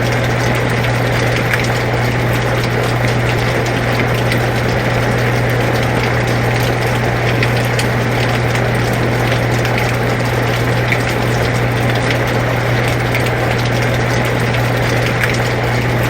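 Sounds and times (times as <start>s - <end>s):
air conditioner humming: 0.0s - 16.0s
rain falling: 0.0s - 16.0s.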